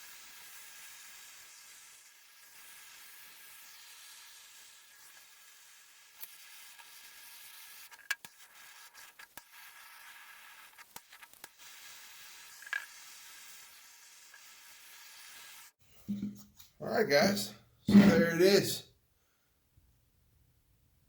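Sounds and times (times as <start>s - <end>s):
torch flame hissing: 0.0s - 15.8s.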